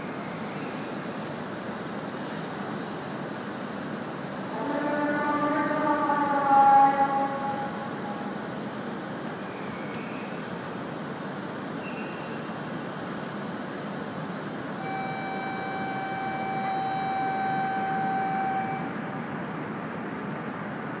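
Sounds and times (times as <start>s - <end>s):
station ambience: 0.0s - 21.0s
train humming and hissing: 0.0s - 21.0s
held pitched signal tone: 14.8s - 19.0s.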